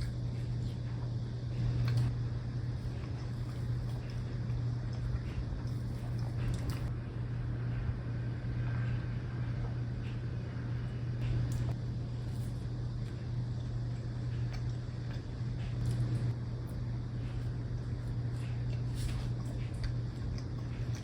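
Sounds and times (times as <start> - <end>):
low hum: 0.0 - 21.0
chewing clicks: 1.7 - 2.1, 2.8 - 6.9, 18.0 - 21.0.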